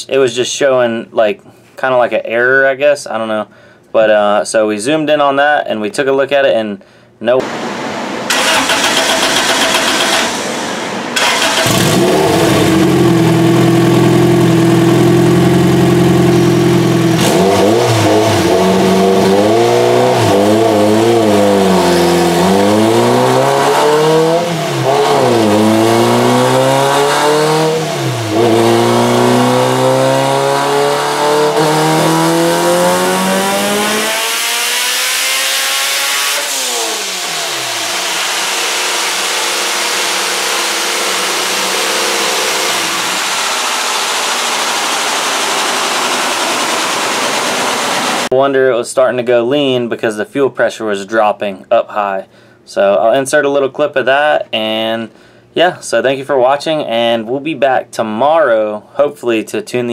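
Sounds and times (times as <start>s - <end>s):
turbocharged car engine revving: 7.4s - 48.3s.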